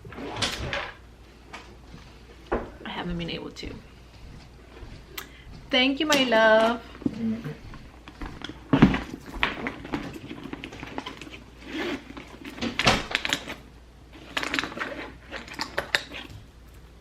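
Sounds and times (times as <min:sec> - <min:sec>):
rummaging through a handbag: 0:07.9 - 0:16.7.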